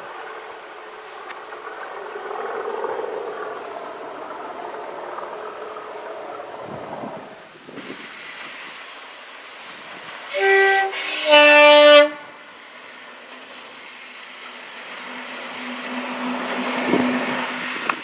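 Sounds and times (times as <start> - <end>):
locomotive engine drone: 0.0 - 18.0
two-tone locomotive horn: 10.3 - 12.7, 15.0 - 18.0.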